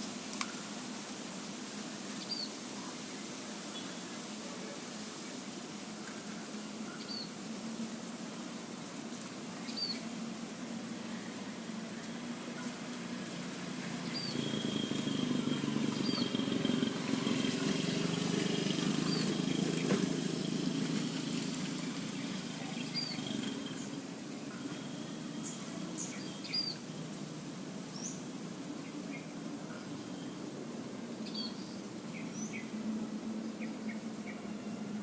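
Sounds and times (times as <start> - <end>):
thin steady high tone: 13.3 - 27.2.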